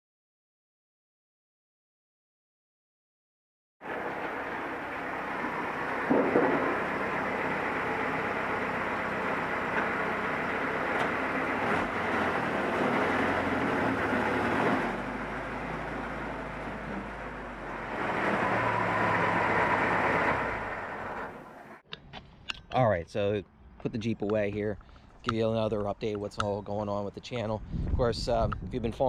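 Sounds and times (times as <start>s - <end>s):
jeep engine running: 3.8s - 21.8s.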